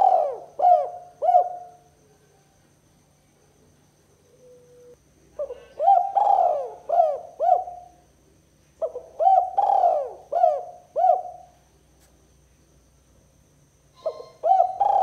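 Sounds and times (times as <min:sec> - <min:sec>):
dove cooing: 0:00.0 - 0:01.9, 0:04.3 - 0:08.0, 0:08.8 - 0:11.6, 0:14.0 - 0:15.0.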